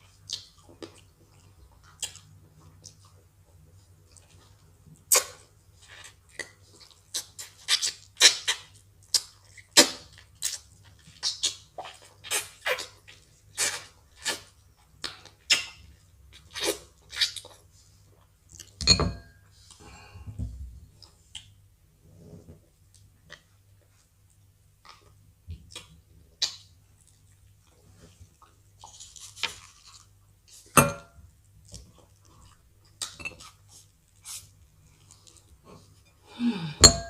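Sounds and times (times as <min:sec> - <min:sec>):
eating mouth smacks: 0:05.0 - 0:15.7
dishes clinking: 0:18.8 - 0:19.4, 0:30.8 - 0:31.2, 0:36.8 - 0:37.0
low steady hum: 0:30.8 - 0:37.0.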